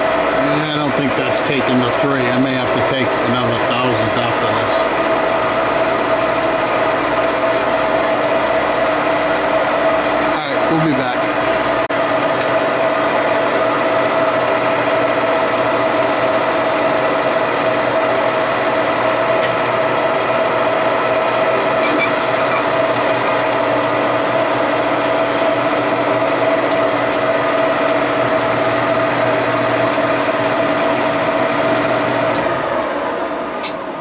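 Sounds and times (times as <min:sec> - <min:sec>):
machine tool humming: 0:00.0 - 0:13.0, 0:25.8 - 0:34.0.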